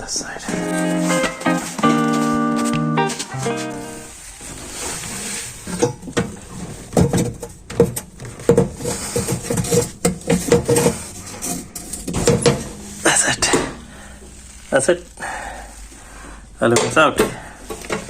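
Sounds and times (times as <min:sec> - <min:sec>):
metal clinking and knocking: 0:05.7 - 0:12.8.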